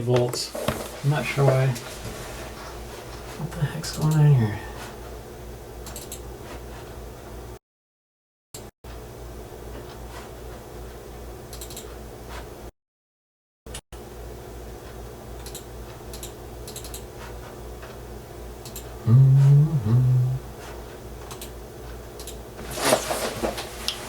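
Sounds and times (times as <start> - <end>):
low electrical hum: 0.0 - 6.4, 14.0 - 24.0
person humming: 19.0 - 20.6.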